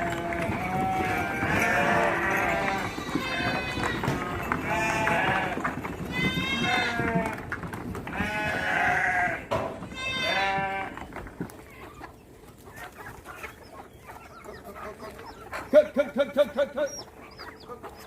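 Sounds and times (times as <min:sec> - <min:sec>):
sheep bleating: 0:00.0 - 0:07.5, 0:08.1 - 0:11.1
chickens clucking: 0:00.0 - 0:18.0.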